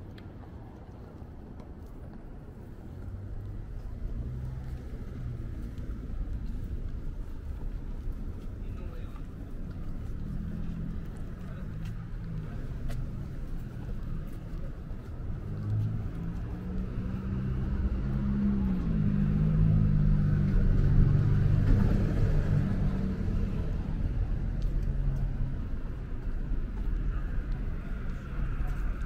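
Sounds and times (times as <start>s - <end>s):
vehicle engine passing: 3.0s - 8.1s, 9.7s - 25.9s.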